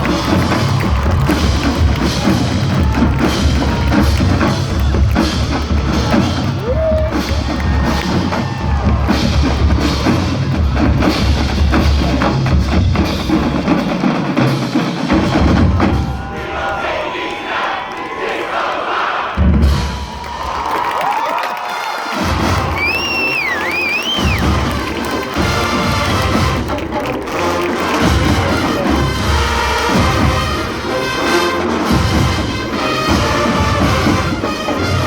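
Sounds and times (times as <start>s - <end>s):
heavy bass drums: 0.0s - 16.5s.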